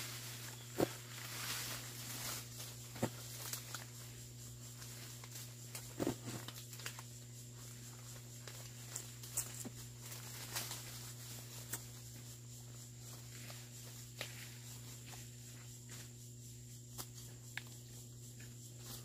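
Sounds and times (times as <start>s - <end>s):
steady low hum: 0.0s - 19.0s
hoe chopping into soil: 6.0s - 6.4s.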